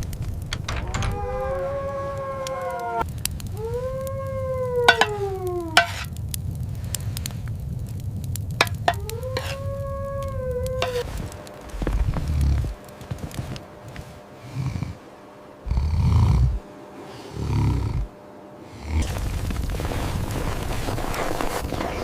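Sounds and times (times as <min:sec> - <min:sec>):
wolves howling: 0:00.0 - 0:06.1, 0:08.6 - 0:12.8
steady low rumble: 0:00.0 - 0:17.0.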